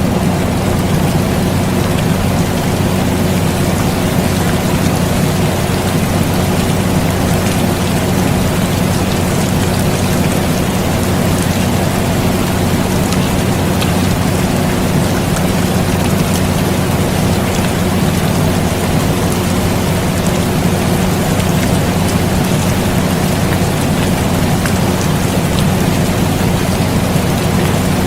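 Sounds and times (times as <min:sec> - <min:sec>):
air conditioner humming: 0:00.0 - 0:28.0
steady rain: 0:00.0 - 0:28.0
raindrop ticks: 0:00.1 - 0:28.0.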